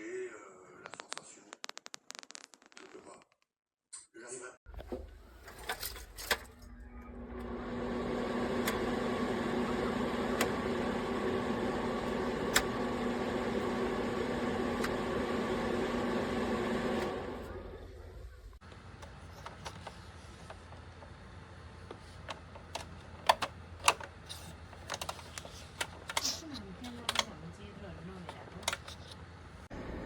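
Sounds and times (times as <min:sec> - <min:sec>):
space heater fan humming: 0:04.7 - 0:30.0.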